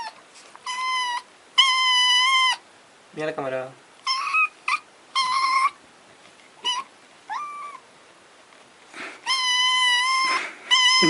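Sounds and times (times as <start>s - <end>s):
kitten meowing: 6.6s - 7.8s, 9.2s - 11.0s.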